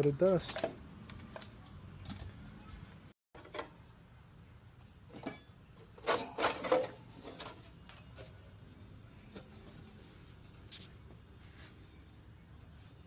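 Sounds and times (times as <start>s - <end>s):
hand tools and metal parts clicking: 0.2s - 2.6s, 5.1s - 8.6s.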